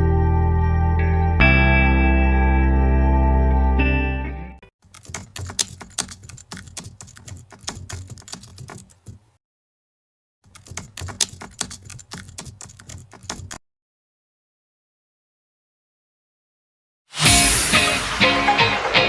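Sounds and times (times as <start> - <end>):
rapid irregular clicking: 4.8 - 9.4, 10.5 - 13.6.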